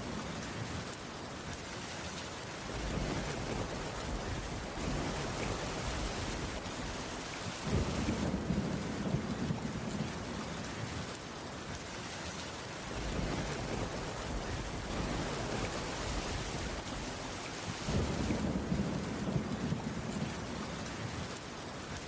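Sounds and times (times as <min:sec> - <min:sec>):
rain on a roof: 0:00.0 - 0:22.0
thunder rolling: 0:02.7 - 0:10.2, 0:17.8 - 0:20.5.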